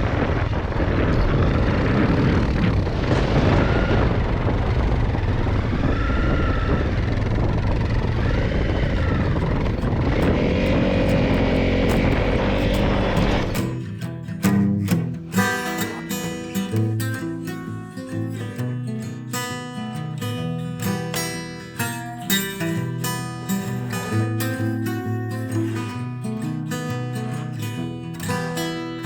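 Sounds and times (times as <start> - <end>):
heavy wind rumble: 0.0 - 13.8
steady hum: 0.0 - 13.8
engine running: 0.0 - 17.1.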